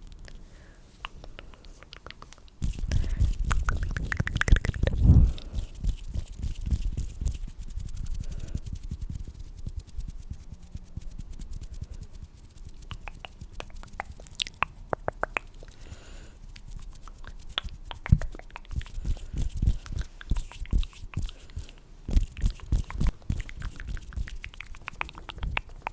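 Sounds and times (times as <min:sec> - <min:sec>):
hands rubbing: 0:00.9 - 0:25.9
wet mouth clicks and smacks: 0:01.0 - 0:08.0, 0:12.5 - 0:25.9
soft low thumps: 0:02.7 - 0:07.1.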